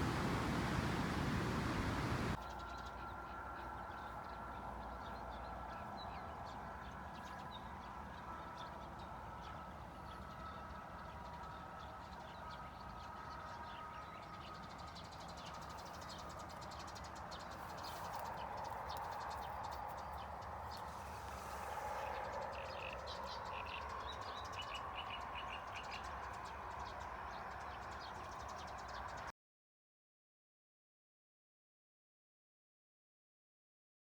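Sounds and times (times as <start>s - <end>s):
steady background hiss: 0.0s - 2.4s
small birds chirping: 0.0s - 3.2s.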